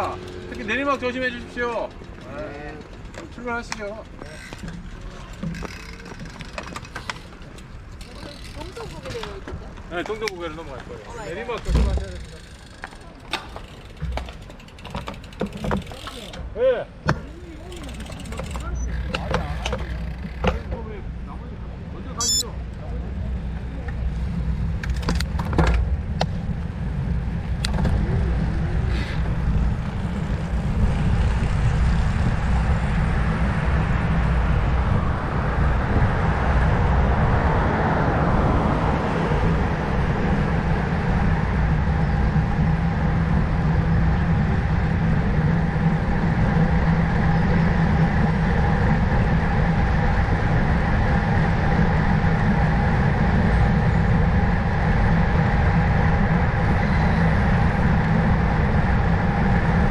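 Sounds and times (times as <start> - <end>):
road noise rumble: 0.0 - 59.9
wind buffeting microphone: 23.3 - 59.9.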